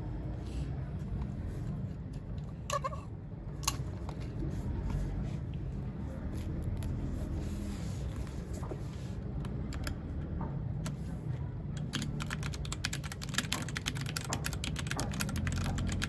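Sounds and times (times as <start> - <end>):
low steady hum: 0.0 - 13.4
mechanical keyboard typing: 9.4 - 10.0, 11.8 - 16.0.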